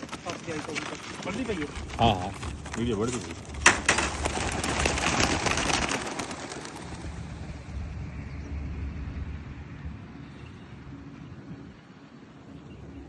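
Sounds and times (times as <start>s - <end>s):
pigeons' wings flapping: 0.0s - 7.9s
wind rumble on microphone: 1.2s - 13.0s.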